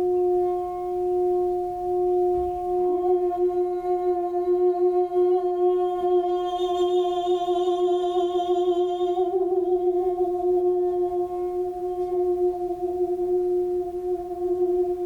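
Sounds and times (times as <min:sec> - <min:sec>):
singing bowl ringing: 0:05.6 - 0:09.4.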